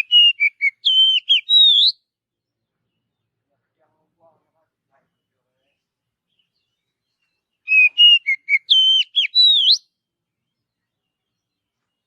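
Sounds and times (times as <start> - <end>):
bird singing whistled notes: 0.0 - 2.1, 6.3 - 12.0.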